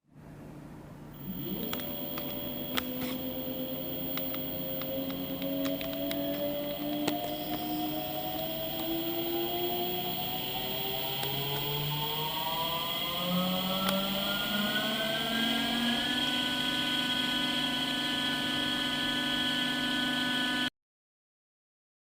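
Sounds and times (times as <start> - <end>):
electric motor whining: 1.2 - 20.7.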